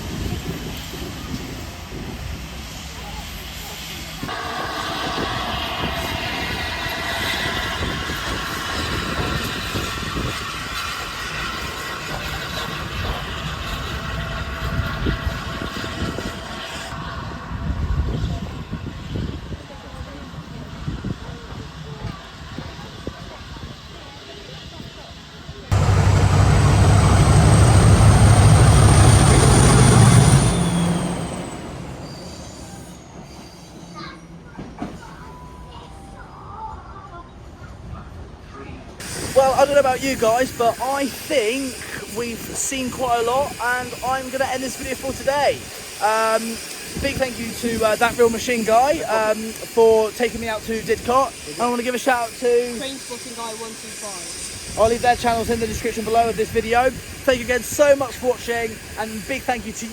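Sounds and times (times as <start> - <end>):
train rumbling on track: 0.0 - 59.9
high steady tones: 4.3 - 9.5.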